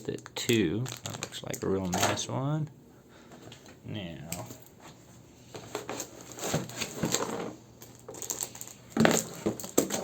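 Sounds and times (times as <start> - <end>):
packaging clicks and rustles: 0.0 - 2.2, 5.6 - 10.0.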